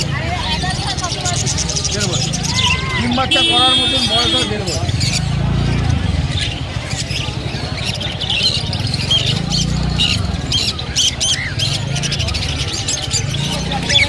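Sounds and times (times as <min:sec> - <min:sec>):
caged birds chirping: 0:00.0 - 0:14.0
people talking low: 0:00.0 - 0:14.0.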